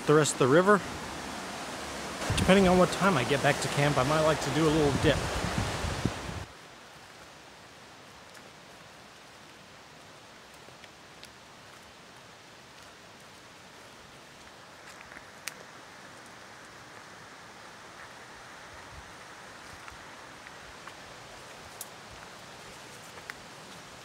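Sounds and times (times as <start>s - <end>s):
river flowing: 0.0s - 24.0s
light ticks and snaps: 10.5s - 11.9s, 14.9s - 16.3s, 21.7s - 22.0s.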